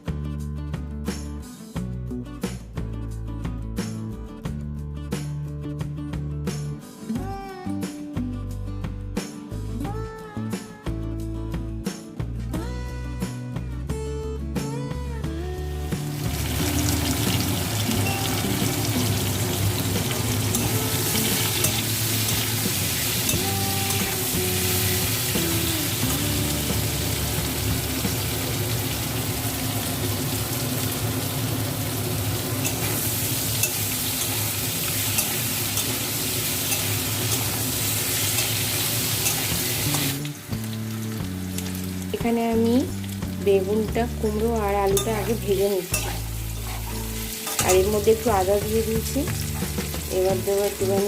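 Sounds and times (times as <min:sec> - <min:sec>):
soft background music: 0:00.0 - 0:51.0
vegetables sizzling in oil: 0:15.8 - 0:51.0.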